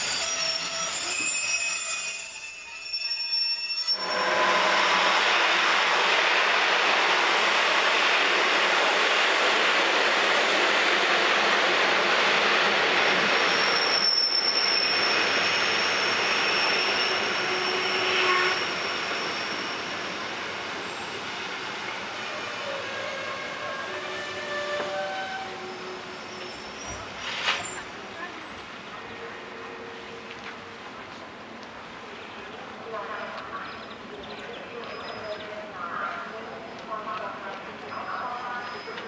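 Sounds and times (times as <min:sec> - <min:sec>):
high wheel squeal: 0:00.0 - 0:05.2, 0:13.3 - 0:21.2, 0:21.8 - 0:28.6, 0:37.9 - 0:39.0
train wheels on track: 0:00.0 - 0:39.0.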